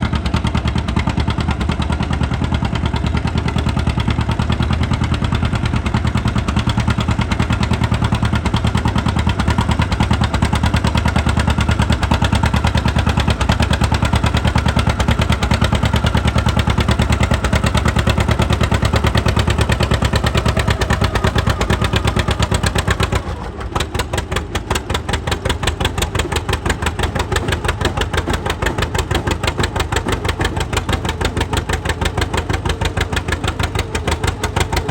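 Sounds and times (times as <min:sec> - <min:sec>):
tractor engine popping exhaust: 0:00.0 - 0:34.9.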